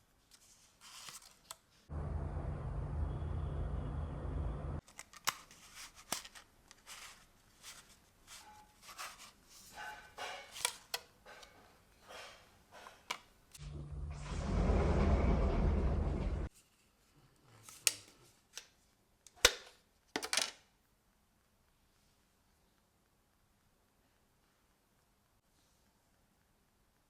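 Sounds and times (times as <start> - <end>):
soft rustles of handled objects: 0.0 - 1.9, 4.8 - 13.4, 16.5 - 27.0
steady low hum: 1.9 - 4.8, 13.6 - 16.5.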